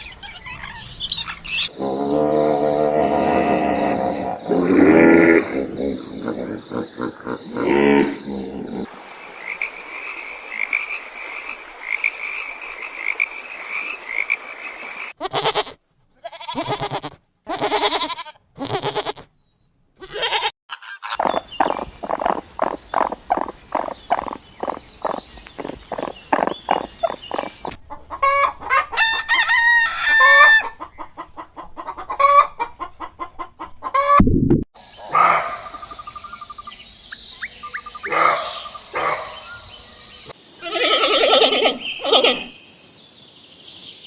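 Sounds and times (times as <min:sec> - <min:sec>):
high repeated animal call: 0:15.1 - 0:19.2, 0:20.0 - 0:28.5, 0:34.8 - 0:36.7, 0:37.4 - 0:39.6, 0:40.6 - 0:42.6
loud animal calls: 0:20.0 - 0:28.4, 0:35.0 - 0:36.4, 0:37.8 - 0:39.6
short rhythmic croak-like calls: 0:20.3 - 0:28.8, 0:34.8 - 0:39.8.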